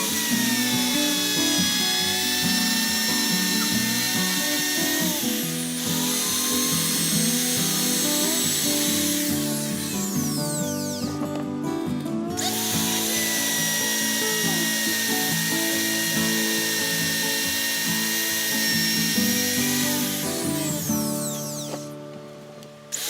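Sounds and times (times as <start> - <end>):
power tool whining: 0.0 - 23.0.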